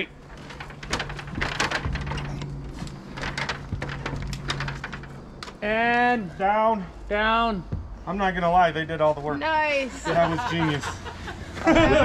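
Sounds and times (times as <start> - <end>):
steady low hum: 0.0 - 11.8
wooden knocks and clicks: 0.3 - 5.6.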